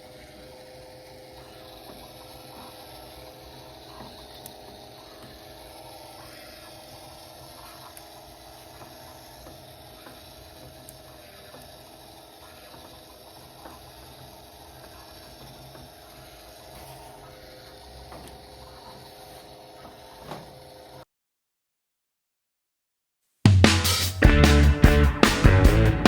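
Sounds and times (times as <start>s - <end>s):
small motor humming: 0.0s - 21.1s.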